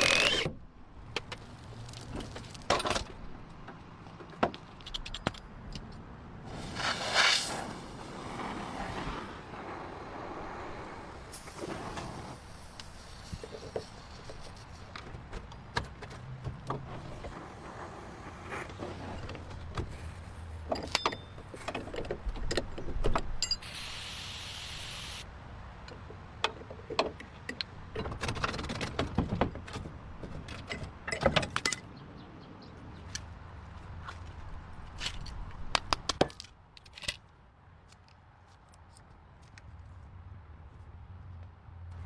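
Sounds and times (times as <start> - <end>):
steady hiss: 6.5 - 15.0, 23.6 - 25.3
metal tools clinking and knocking: 20.7 - 22.6.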